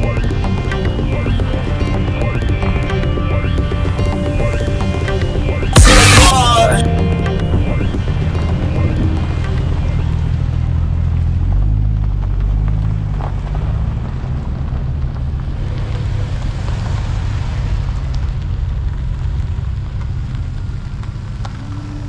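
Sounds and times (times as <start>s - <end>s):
car engine rumble: 0.0s - 22.0s
noisy hiss: 3.7s - 11.0s.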